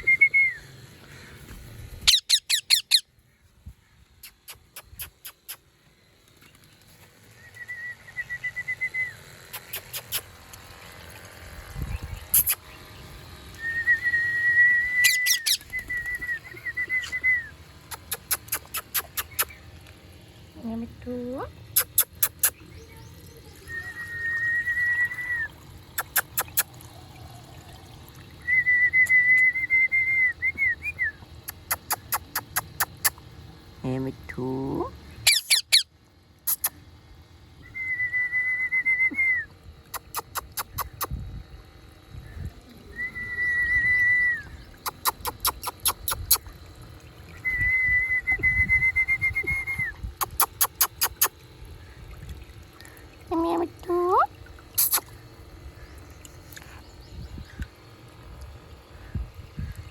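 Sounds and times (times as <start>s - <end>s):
quick sharp clicks: 12.4s - 12.7s, 31.4s - 33.2s, 50.2s - 51.4s
parrot whistling high note: 13.6s - 17.5s.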